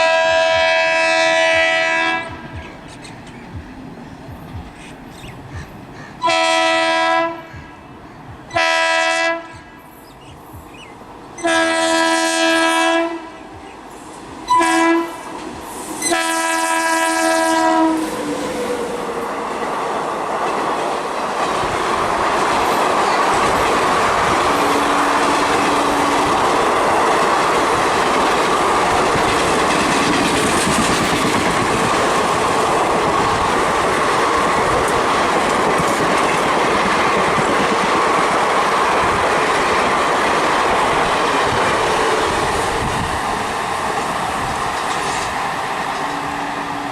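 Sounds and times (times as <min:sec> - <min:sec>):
locomotive horn blasts: 0:00.0 - 0:02.4, 0:06.2 - 0:07.5, 0:08.5 - 0:09.7, 0:11.4 - 0:13.6, 0:14.5 - 0:15.3, 0:16.0 - 0:18.1
train rushing past: 0:00.0 - 0:46.9.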